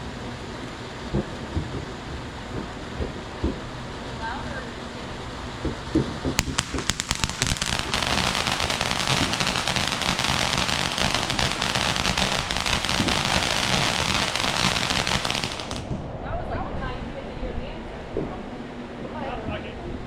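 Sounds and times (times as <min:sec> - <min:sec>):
firework crackling: 0:06.4 - 0:16.0.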